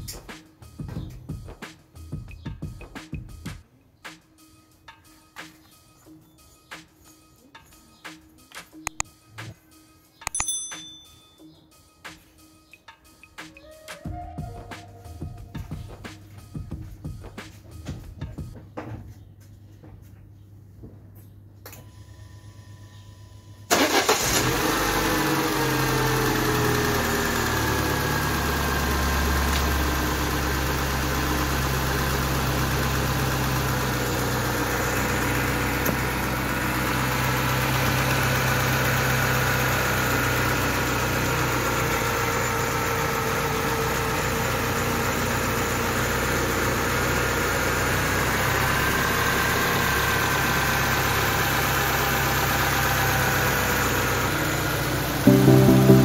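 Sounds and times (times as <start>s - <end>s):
car engine idling: 23.7s - 56.0s.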